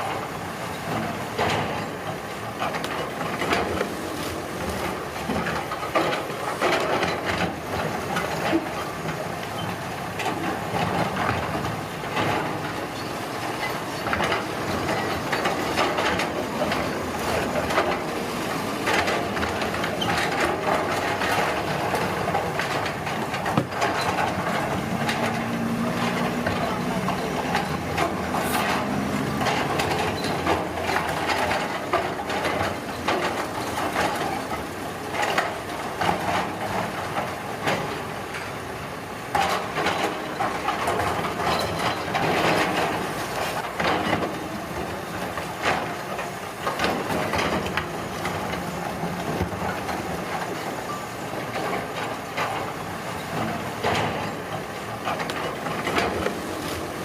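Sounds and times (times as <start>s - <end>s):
construction machinery engine hum: 0.0s - 57.0s
knocks and clatters: 5.3s - 38.0s.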